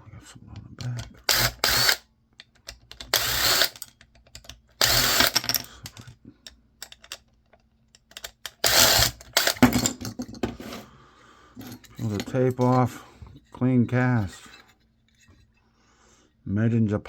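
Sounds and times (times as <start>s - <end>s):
clicks and rattles of loose parts: 0.8s - 10.6s, 11.6s - 13.6s
power screwdriver running: 1.2s - 2.0s, 3.0s - 3.9s, 4.8s - 5.6s, 8.5s - 9.6s.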